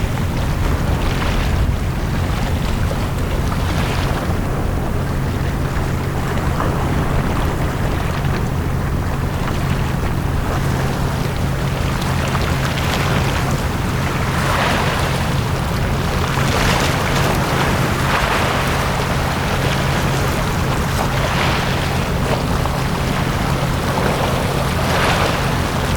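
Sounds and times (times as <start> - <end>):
sea waves washing onto beach: 0.0 - 25.9
steady low rumble: 0.0 - 25.9.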